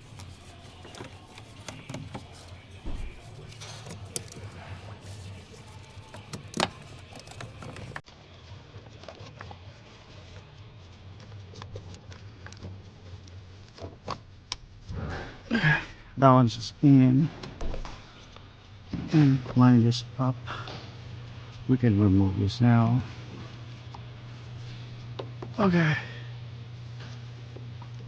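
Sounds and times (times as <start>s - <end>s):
steady low hum: 0.0s - 8.0s, 10.4s - 28.0s
clicks and knocks of tools: 3.2s - 8.0s.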